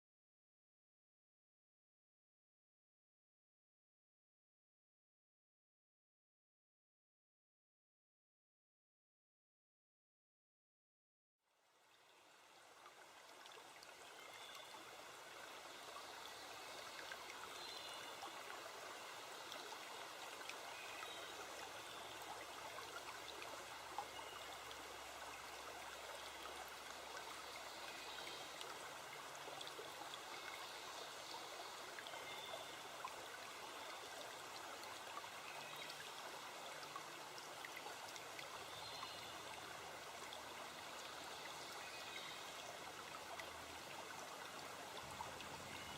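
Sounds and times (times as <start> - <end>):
stream water splashing: 12.4 - 45.9.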